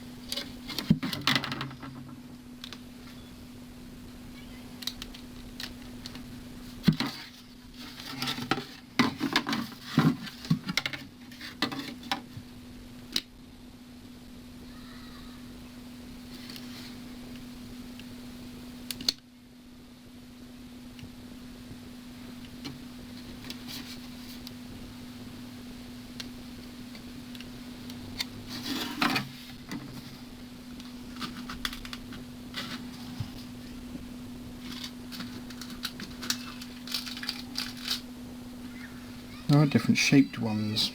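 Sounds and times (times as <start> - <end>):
steady low hum: 0.0 - 40.9
rustling scrape: 6.6 - 12.1, 23.1 - 24.5, 28.1 - 33.6
tools and plastic parts clicking: 34.6 - 38.1.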